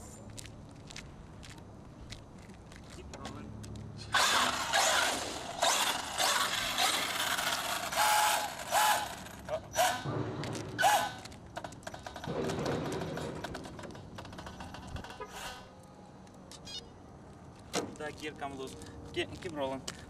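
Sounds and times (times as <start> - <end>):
electric motor whining: 4.1 - 10.0
gears grinding and clattering: 4.1 - 15.7.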